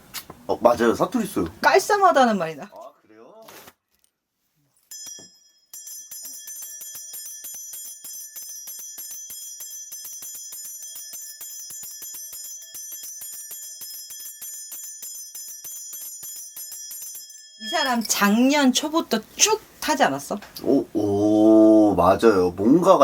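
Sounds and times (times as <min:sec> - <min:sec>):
bell cluster jingling: 0:04.8 - 0:20.3.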